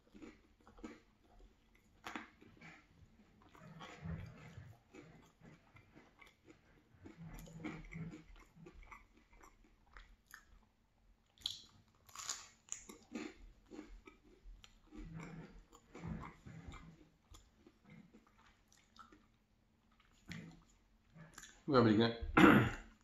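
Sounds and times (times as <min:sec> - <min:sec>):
chewing and wet mouth sounds: 0:00.0 - 0:21.7.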